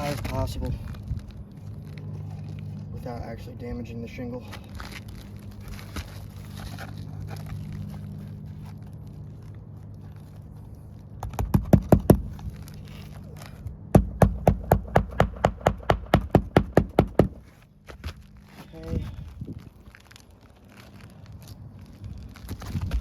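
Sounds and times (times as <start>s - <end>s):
steady low hum: 0.0s - 23.0s
hammer nailing shingles: 11.2s - 12.3s, 14.0s - 17.4s.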